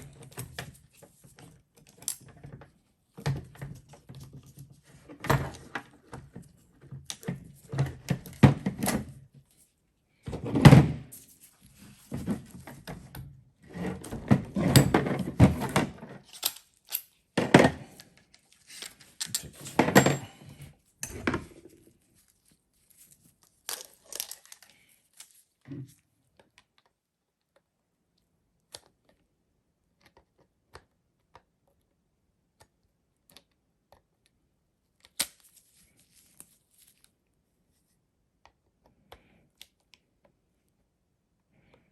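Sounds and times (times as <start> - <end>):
metal parts and tools clattering: 14.0 - 18.0, 18.7 - 21.8, 23.7 - 24.7.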